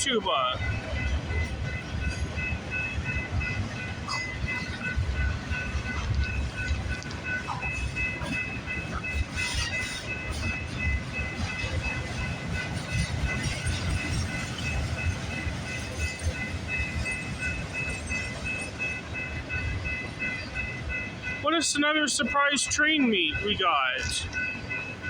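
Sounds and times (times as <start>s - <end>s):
freight train cars rumbling: 0.0s - 25.0s
train wheel clatter: 0.5s - 25.0s.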